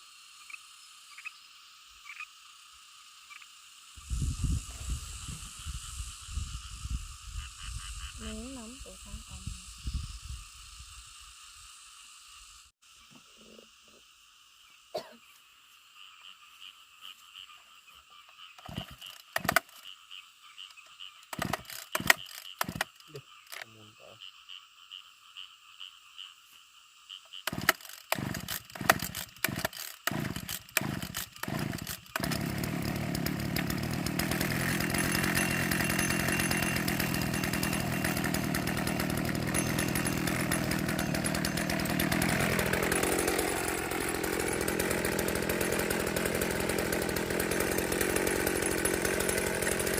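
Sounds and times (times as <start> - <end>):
small petrol engine running: 18.6 - 19.7, 21.3 - 23.0, 27.5 - 49.9.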